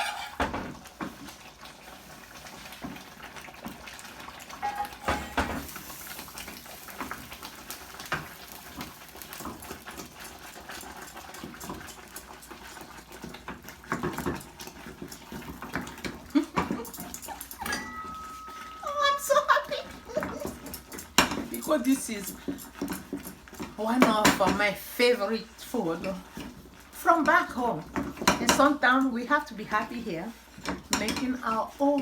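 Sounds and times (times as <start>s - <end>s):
spoon knocking and scraping pot: 0.0s - 1.1s, 4.6s - 5.8s, 13.2s - 18.9s, 19.8s - 24.7s, 30.6s - 31.4s.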